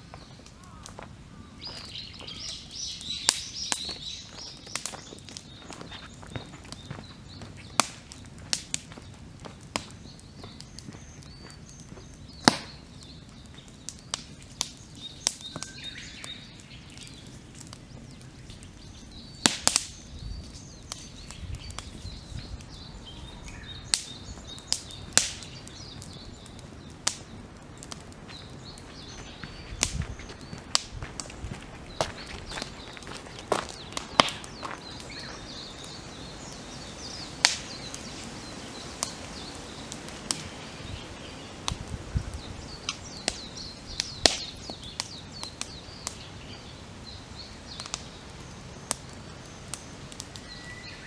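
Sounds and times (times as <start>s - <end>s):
campfire crackling and popping: 0.0s - 51.0s
faint bird calls: 0.1s - 7.9s, 18.2s - 46.7s, 50.3s - 51.0s.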